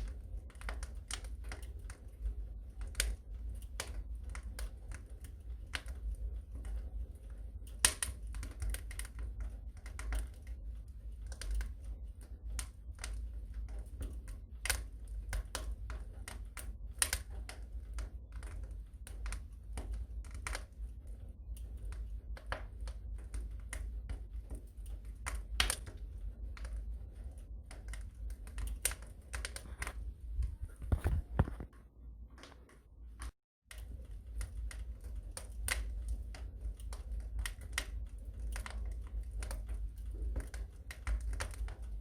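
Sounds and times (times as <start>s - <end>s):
wood fire crackling: 0.0s - 42.0s
low rumble: 26.0s - 32.3s.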